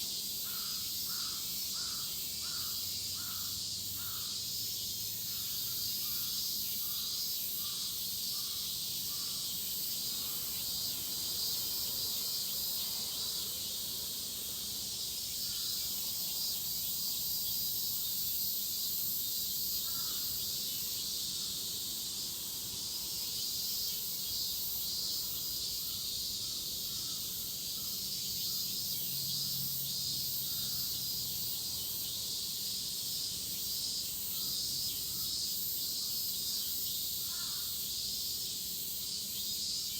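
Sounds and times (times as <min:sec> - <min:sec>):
cicadas shrilling: 0:00.0 - 0:39.9.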